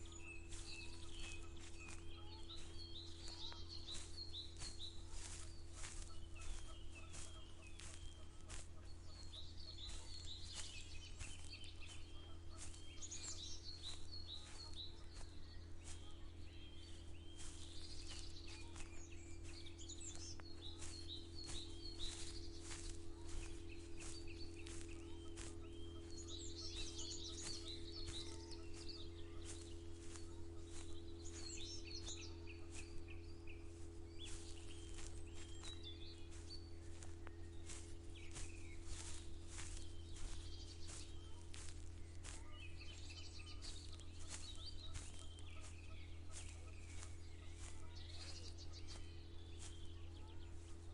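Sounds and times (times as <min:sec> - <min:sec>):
small birds chirping: 0:00.0 - 0:50.9
soft footsteps: 0:00.0 - 0:50.9
steady low hum: 0:00.0 - 0:50.9.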